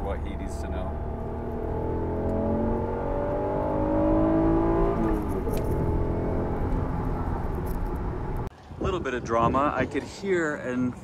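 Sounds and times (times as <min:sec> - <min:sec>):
car engine accelerating: 0:00.0 - 0:08.5.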